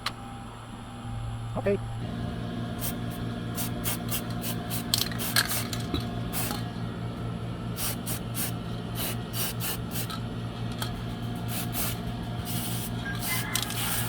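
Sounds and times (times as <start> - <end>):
steady low hum: 0.0 - 14.0
aerosol spray can hissing: 2.8 - 6.6, 7.8 - 10.2, 11.5 - 14.0.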